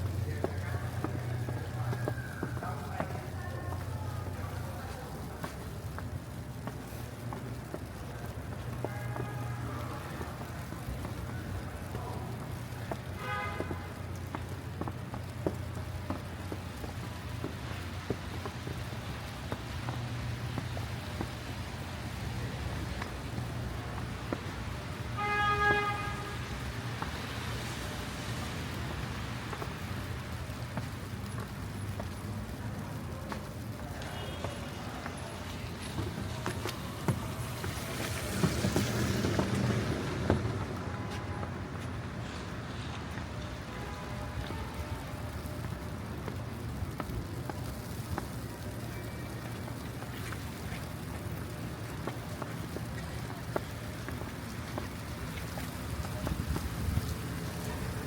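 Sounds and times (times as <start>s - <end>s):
city street traffic rumble: 0.0s - 58.0s
footsteps on wet snowy pavement: 0.0s - 58.0s
car horn toot: 13.2s - 13.9s, 25.2s - 26.5s.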